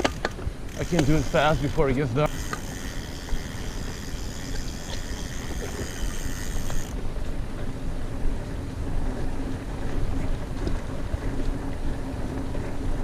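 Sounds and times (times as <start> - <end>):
rattling drivetrain: 0.0 - 7.1
light ticks from bike: 0.0 - 7.8
bike tyre rumble on dirt: 0.0 - 13.0.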